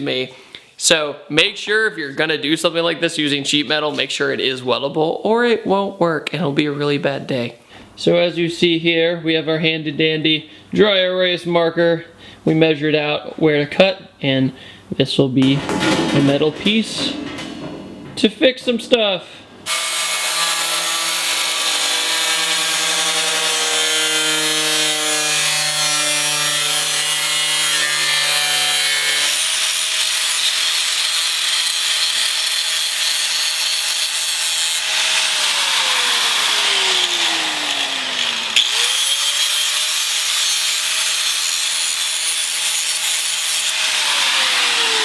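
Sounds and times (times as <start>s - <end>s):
power tool cutting sheet metal: 19.7s - 45.0s.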